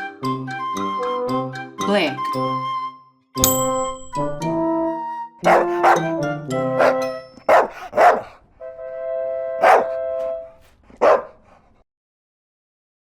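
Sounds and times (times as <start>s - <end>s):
bouncy children's music: 0.0s - 8.2s
dog barking: 5.4s - 6.2s, 6.8s - 8.4s, 9.6s - 10.0s, 10.9s - 11.6s.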